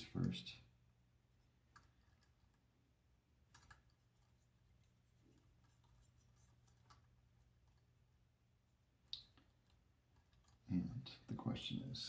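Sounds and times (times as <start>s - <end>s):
faint clicks of small parts: 1.5s - 2.7s, 3.4s - 8.0s, 9.0s - 11.4s.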